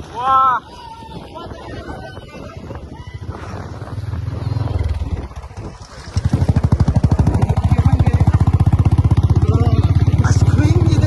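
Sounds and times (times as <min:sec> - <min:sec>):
motorcycle engine running: 0:03.6 - 0:11.0.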